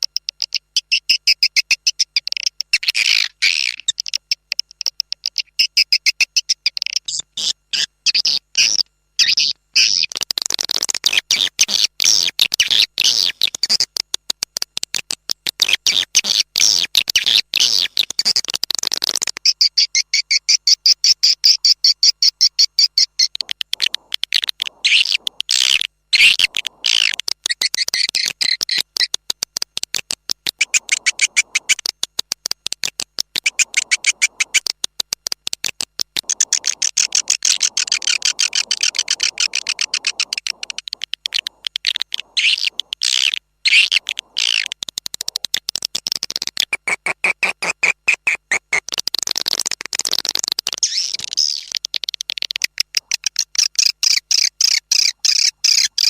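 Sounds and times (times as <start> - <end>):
swiftlet twittering chirps: 19.5 - 29.2, 30.5 - 32.1, 33.4 - 34.7, 36.2 - 45.4.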